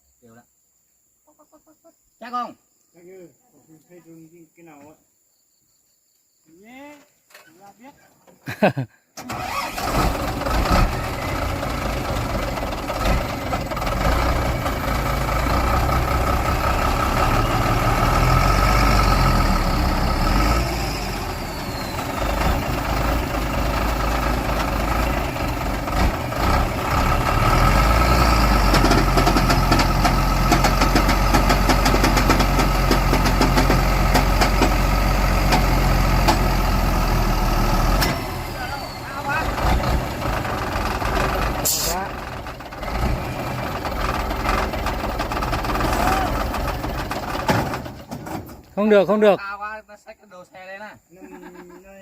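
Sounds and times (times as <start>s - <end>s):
truck engine revving under load: 9.2s - 48.7s.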